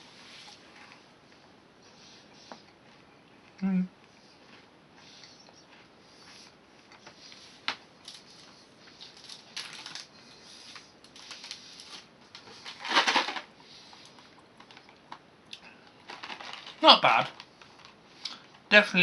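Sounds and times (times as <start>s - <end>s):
chewing sounds: 2.5s - 7.2s.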